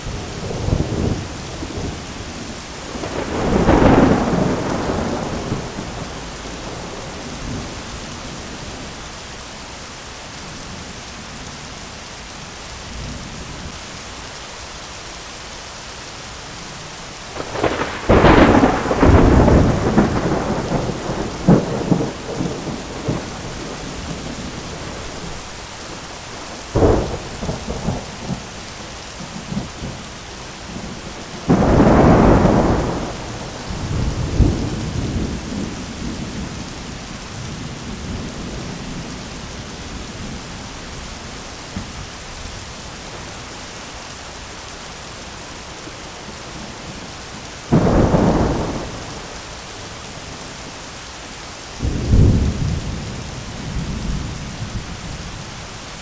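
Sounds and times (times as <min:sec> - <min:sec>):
crackling thunder peal: 0:00.0 - 0:08.8, 0:17.3 - 0:28.6, 0:30.6 - 0:40.8, 0:46.2 - 0:50.4, 0:51.8 - 0:55.4
heavy rain hissing: 0:00.0 - 0:56.0
thunder rolling: 0:00.1 - 0:07.8, 0:17.4 - 0:28.6, 0:30.7 - 0:39.2, 0:47.7 - 0:49.8, 0:51.8 - 0:55.0.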